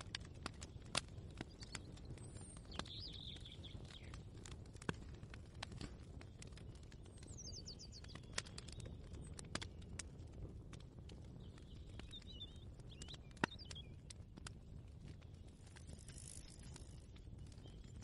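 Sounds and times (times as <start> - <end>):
small bird chirping: 1.4 - 4.4, 6.4 - 9.4, 11.3 - 14.1, 15.3 - 18.0.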